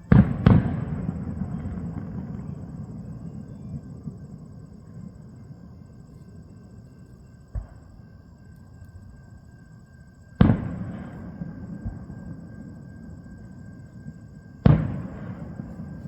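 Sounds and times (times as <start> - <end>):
fireworks boom echoing: 0.0 - 4.2, 10.4 - 13.7, 14.6 - 16.0
fireworks bursting in distance: 0.0 - 8.3, 10.2 - 16.0
fireworks crackle: 14.6 - 16.0.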